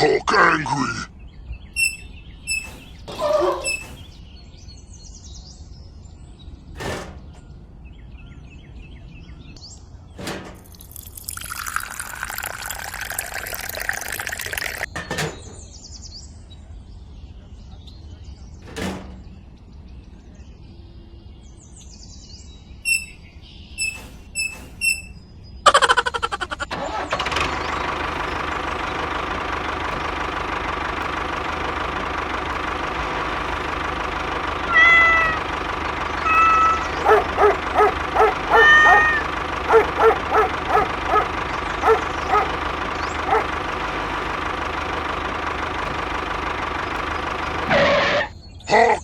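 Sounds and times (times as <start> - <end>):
short high squeaks: 1.8 - 4.3, 22.8 - 48.4.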